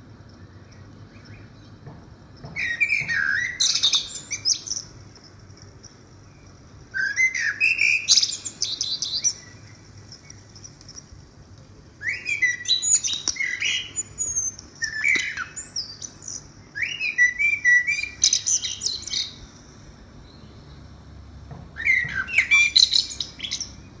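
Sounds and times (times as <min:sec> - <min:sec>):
bird calling loudly: 0:02.5 - 0:05.0, 0:07.0 - 0:09.8, 0:12.0 - 0:19.6, 0:21.7 - 0:23.8.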